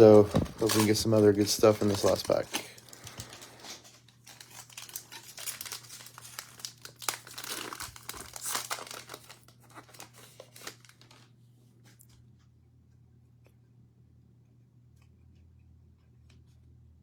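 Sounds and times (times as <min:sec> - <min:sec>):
cellophane wrapper crinkling and tearing: 0:00.0 - 0:11.3.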